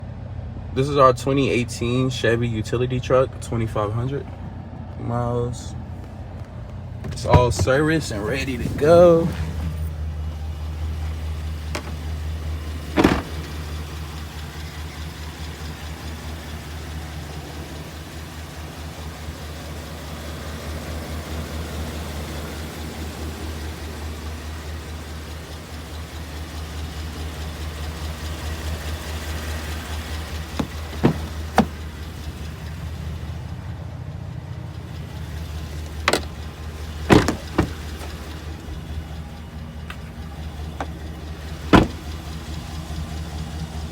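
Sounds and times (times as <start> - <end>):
pickup engine idling: 0.0 - 43.9
sharp knocks: 30.6 - 31.8, 37.1 - 38.1, 41.7 - 42.1.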